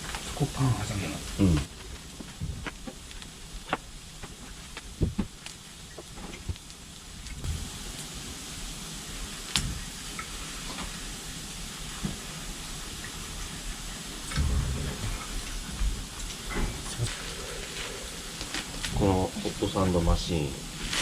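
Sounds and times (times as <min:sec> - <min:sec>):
campfire hissing: 0:00.0 - 0:21.0
low thuds: 0:04.9 - 0:05.4, 0:14.3 - 0:17.2.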